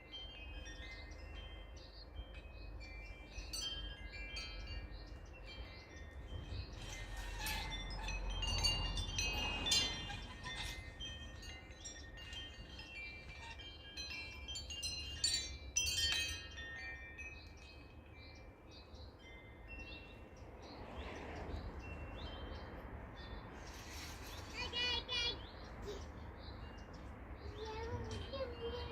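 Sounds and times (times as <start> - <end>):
wind chimes ringing: 0.0 - 28.9
wind rumble on microphone: 3.2 - 14.4, 19.9 - 24.6.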